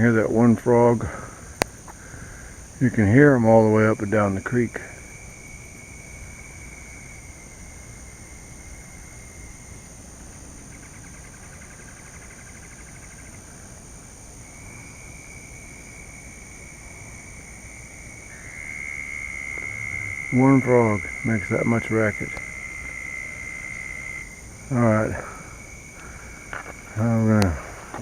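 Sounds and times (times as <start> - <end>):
frog trilling: 10.6 - 13.7, 14.4 - 28.0
high-pitched hum: 18.3 - 28.0.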